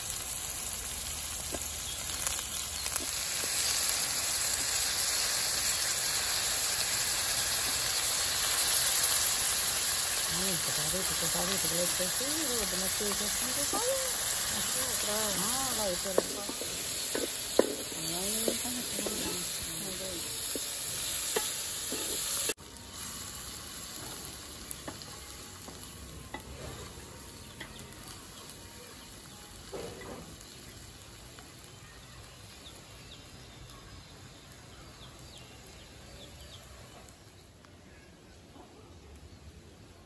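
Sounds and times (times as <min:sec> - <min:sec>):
vegetables sizzling in pot: 0:00.0 - 0:37.5
metal spatula scraping pot: 0:16.0 - 0:22.6.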